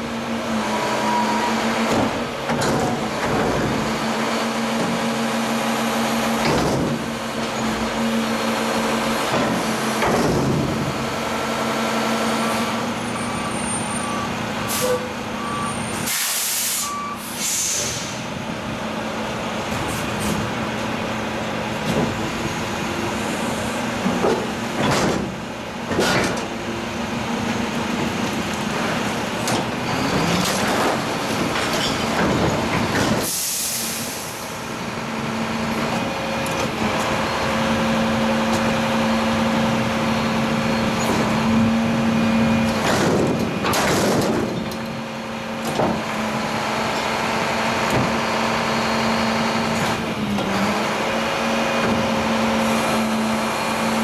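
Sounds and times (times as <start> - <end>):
air brakes hissing: 14.7 - 18.3, 33.2 - 34.6.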